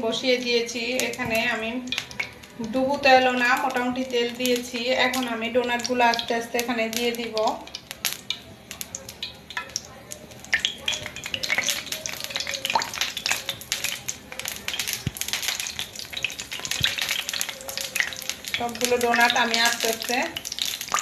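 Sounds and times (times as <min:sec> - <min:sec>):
donuts sizzling in hot oil: 0:00.0 - 0:21.0
oil crackling and popping: 0:00.0 - 0:21.0.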